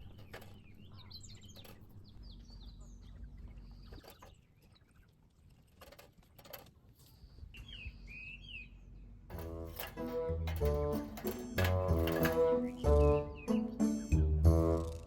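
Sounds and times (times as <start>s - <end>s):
small birds chirping: 0.0s - 5.8s, 6.9s - 9.3s, 11.8s - 15.0s.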